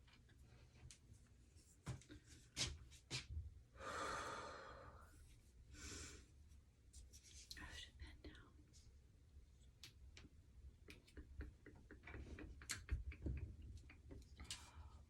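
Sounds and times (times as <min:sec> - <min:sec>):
person breathing heavily: 0:03.8 - 0:05.1.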